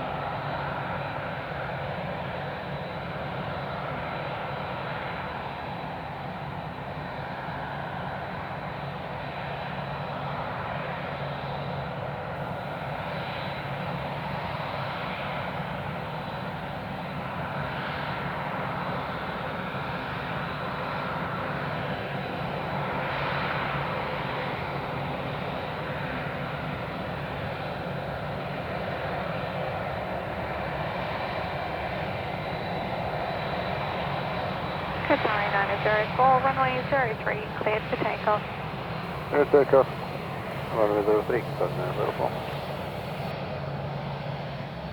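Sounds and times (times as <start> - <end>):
jet engines idling: 23.6 - 43.4.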